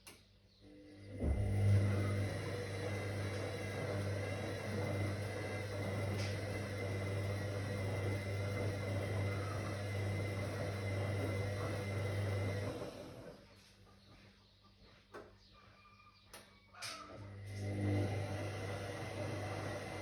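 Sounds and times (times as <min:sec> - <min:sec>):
washing machine motor humming: 0:00.6 - 0:13.5, 0:17.1 - 0:20.0.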